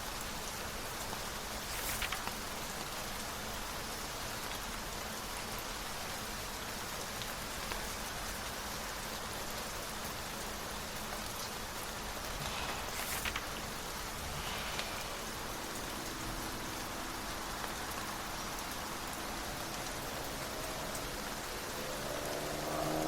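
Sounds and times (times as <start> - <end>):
steady rain: 0.0 - 23.0
brief rustle: 1.6 - 2.5, 12.2 - 15.6.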